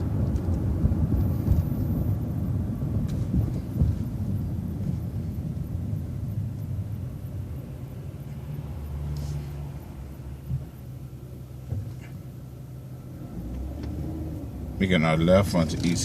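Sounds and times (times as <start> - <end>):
bus diesel engine idling: 0.0 - 13.5.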